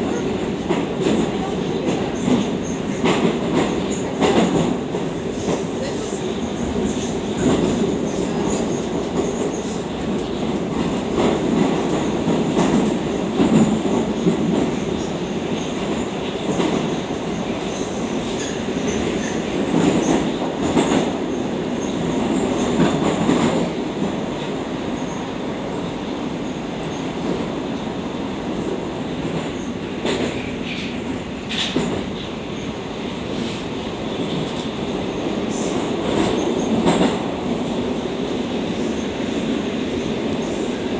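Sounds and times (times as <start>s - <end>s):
train clicks: 0.0s - 17.6s, 29.2s - 32.3s, 33.4s - 35.0s
train wheels rumbling on rails: 0.0s - 40.9s.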